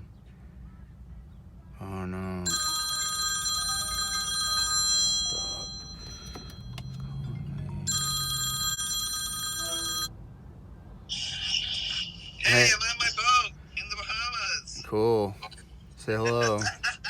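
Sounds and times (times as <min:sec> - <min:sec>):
phone ringtone ringing: 0:02.5 - 0:10.1.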